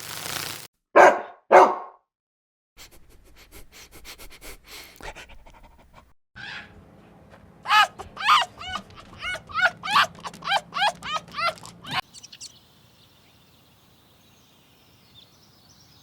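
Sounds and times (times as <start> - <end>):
dog barking: 1.0 - 2.0, 7.7 - 12.0.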